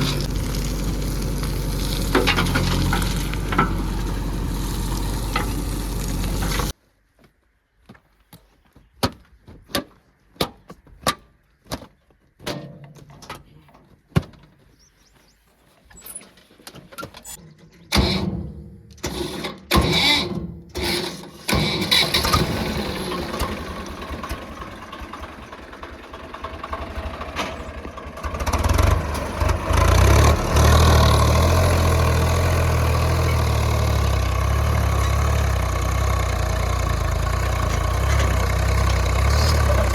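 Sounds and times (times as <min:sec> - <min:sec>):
heavy low rumble: 0:00.0 - 0:06.7
diesel engine starting and running: 0:00.0 - 0:06.8, 0:17.2 - 0:39.9.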